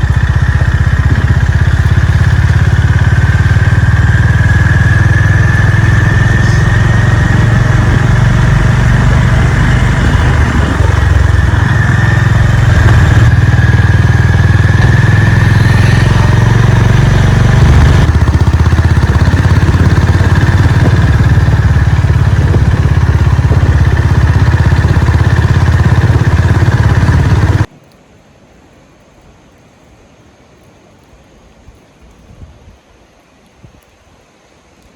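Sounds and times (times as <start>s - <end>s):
motorcycle engine running: 0.0s - 27.7s.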